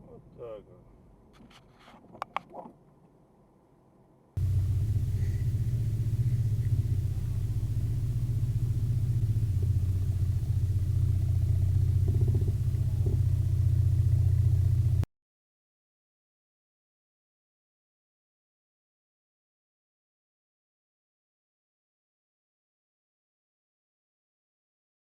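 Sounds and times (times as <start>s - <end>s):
car engine rumble: 4.4s - 15.0s
road noise: 4.4s - 15.0s.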